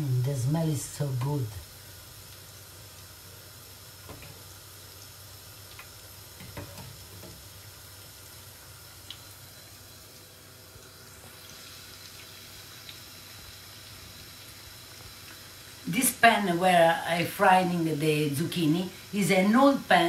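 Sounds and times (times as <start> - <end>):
fritters sizzling in hot oil: 0.0 - 20.0.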